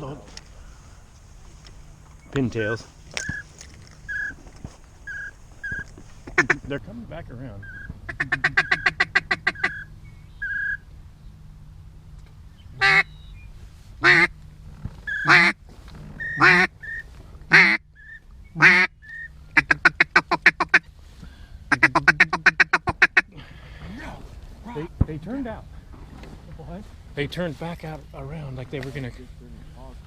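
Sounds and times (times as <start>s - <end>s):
duck call quacks: 2.2s - 6.8s, 8.1s - 9.9s, 12.8s - 13.1s, 14.0s - 14.3s, 15.1s - 15.6s, 16.3s - 17.8s, 18.6s - 18.9s, 21.7s - 23.4s.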